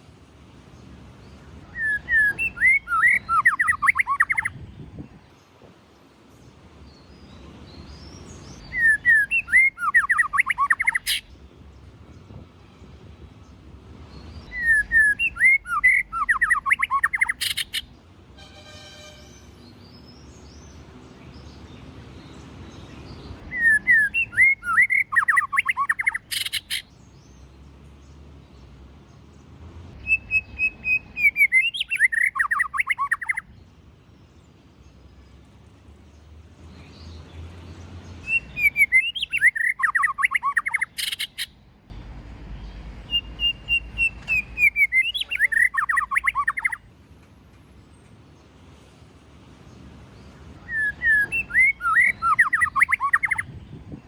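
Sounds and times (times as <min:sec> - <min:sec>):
bird singing: 0:00.6 - 0:05.6, 0:06.3 - 0:29.4, 0:30.0 - 0:41.8, 0:42.6 - 0:48.6, 0:49.7 - 0:54.0.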